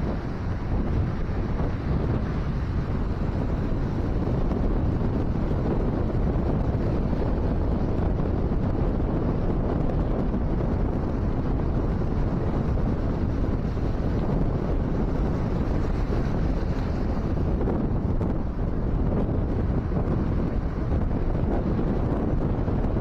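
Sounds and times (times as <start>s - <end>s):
wind blowing across microphone: 0.0s - 23.0s
ocean surf: 12.2s - 19.5s.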